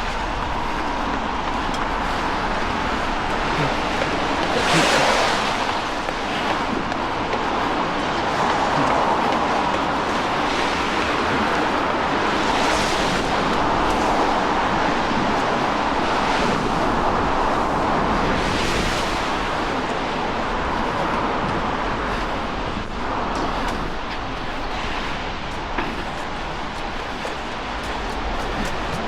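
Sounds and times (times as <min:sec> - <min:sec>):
rain hissing on street: 0:00.0 - 0:29.0
tyres swishing on wet road: 0:00.0 - 0:29.0.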